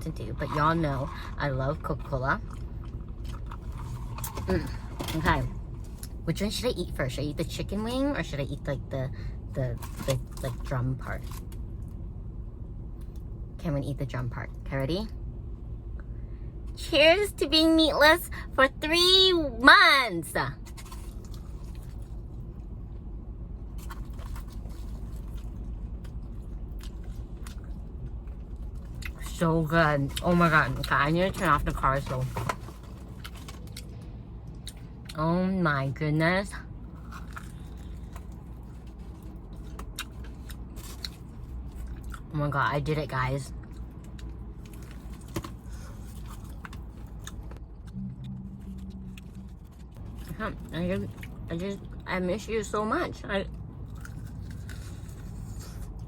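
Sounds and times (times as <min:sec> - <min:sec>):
steady low hum: 0:00.0 - 0:56.0
chewing crispy fried chicken: 0:00.4 - 0:04.8, 0:20.6 - 0:22.6, 0:23.7 - 0:29.3, 0:36.9 - 0:42.3, 0:43.5 - 0:47.6, 0:48.6 - 0:52.0, 0:53.5 - 0:56.0
car cabin rumble: 0:44.7 - 0:52.8.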